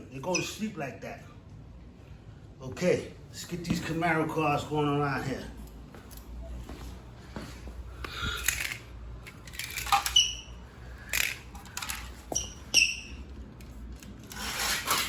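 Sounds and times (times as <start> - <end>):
low steady hum: 0.0 - 15.0
brief high squeaks: 12.3 - 13.2.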